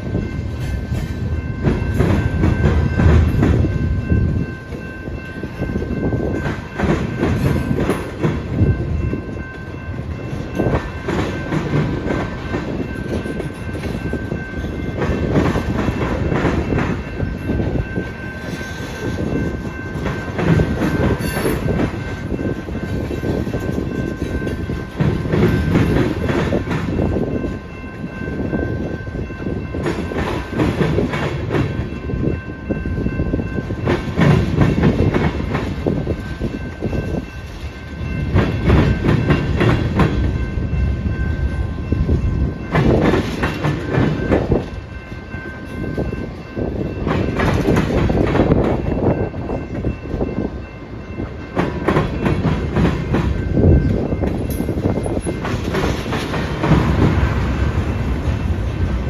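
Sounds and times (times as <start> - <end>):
train rumble: 0.0 - 59.0
train wheels clacking on rail joints: 0.0 - 59.0.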